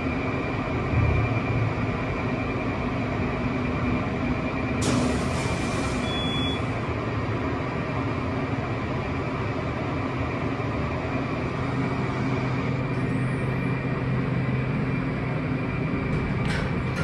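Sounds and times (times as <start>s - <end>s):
elevator rumble and hum: 0.0s - 17.0s
hiss: 4.8s - 6.0s
high beep: 6.0s - 6.7s.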